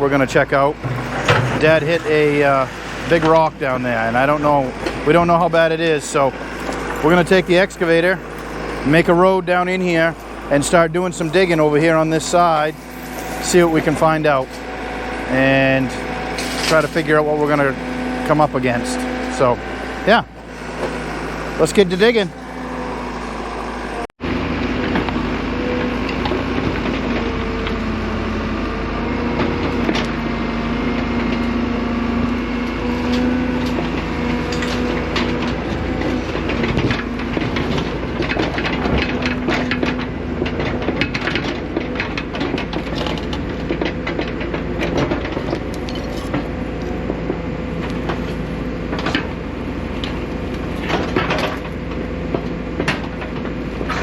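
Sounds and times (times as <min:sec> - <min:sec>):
excavator engine running: 0:00.0 - 0:54.0
metallic clanks and scrapes: 0:00.6 - 0:05.8, 0:09.8 - 0:19.6, 0:32.9 - 0:47.3.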